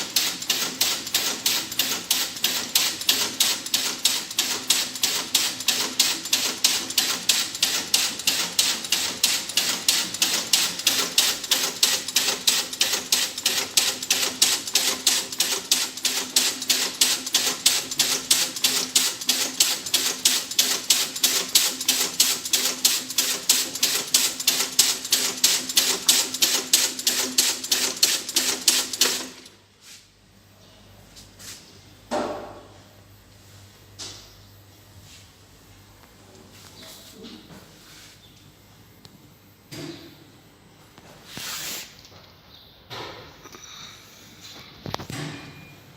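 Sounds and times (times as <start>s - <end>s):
rapid mechanical clicking: 0.0s - 29.6s.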